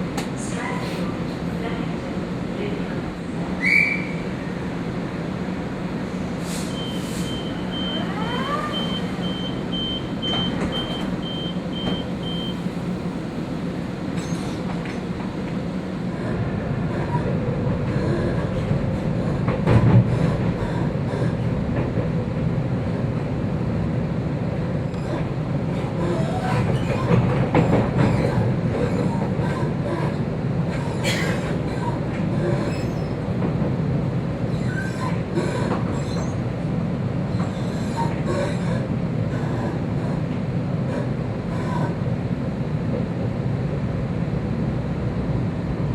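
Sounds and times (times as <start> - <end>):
train rumbling on rails: 0.0 - 45.9
rail clicks: 24.9 - 33.9.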